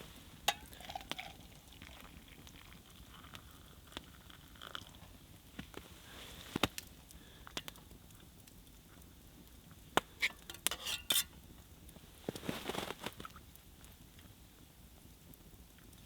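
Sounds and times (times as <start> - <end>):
mug and utensils clinking: 0.5 - 1.4, 10.2 - 11.3.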